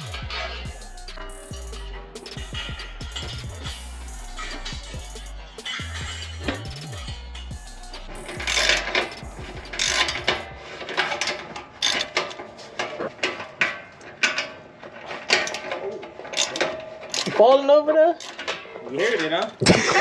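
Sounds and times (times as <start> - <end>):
ratchet wrench clicking: 0.0 - 10.5, 11.1 - 12.4, 16.4 - 17.4.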